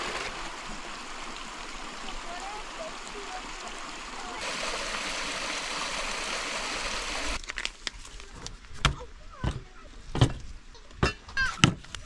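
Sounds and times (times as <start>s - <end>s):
running water rushing: 0.0s - 7.4s.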